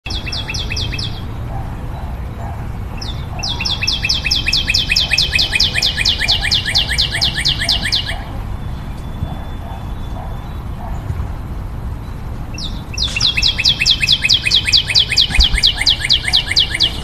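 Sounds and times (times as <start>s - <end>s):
songbird calling short notes: 12.6s - 17.0s.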